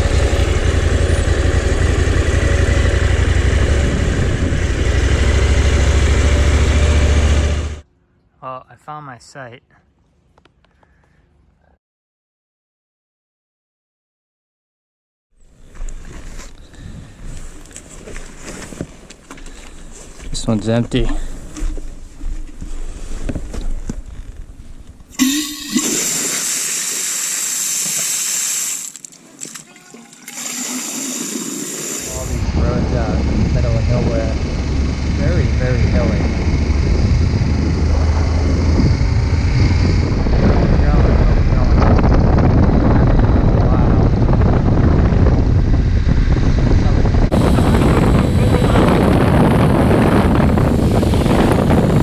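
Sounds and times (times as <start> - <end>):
motorcycle engine running: 0.0 - 7.8, 32.0 - 52.0
toilet flushing: 25.2 - 29.0, 29.6 - 32.4
gurgling tone: 47.3 - 52.0.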